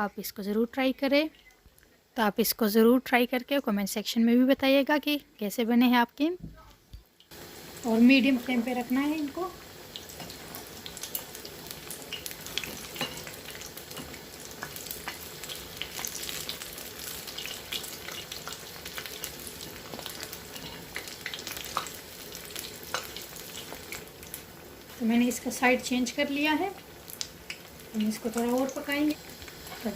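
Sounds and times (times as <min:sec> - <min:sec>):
oil crackling and popping: 0:06.9 - 0:25.6, 0:26.6 - 0:29.9
meat frying in hot oil: 0:07.0 - 0:29.9.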